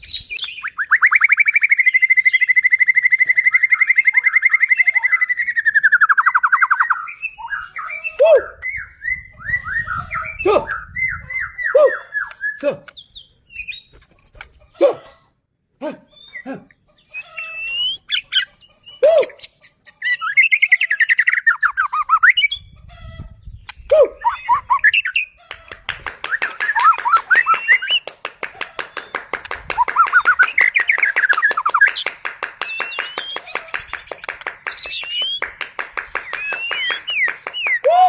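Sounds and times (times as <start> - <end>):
bird singing whistled phrases: 0.0 - 13.9, 17.1 - 22.7, 23.8 - 25.3, 26.3 - 28.0, 34.7 - 35.4, 36.2 - 38.0.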